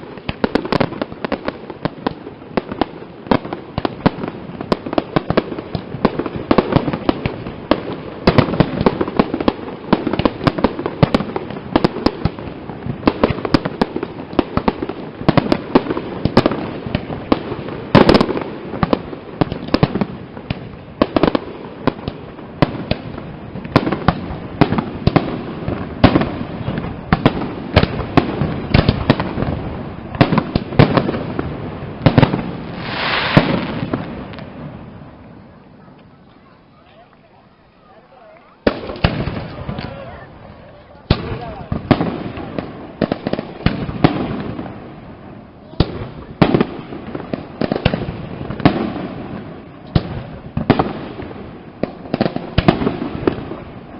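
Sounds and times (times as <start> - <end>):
firecracker-like bangs: 0.0 - 53.9
fireworks shell bursts: 32.7 - 33.8.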